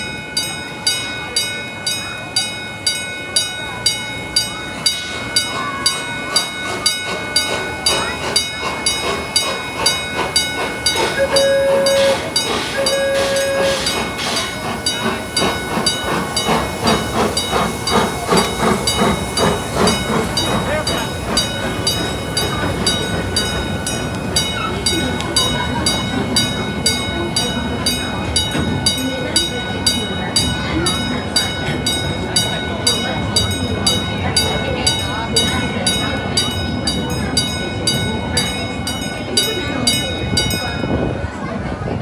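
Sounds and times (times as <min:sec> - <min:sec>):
steam train chugging: 0:00.0 - 0:42.0
train whistle toots: 0:10.9 - 0:15.9.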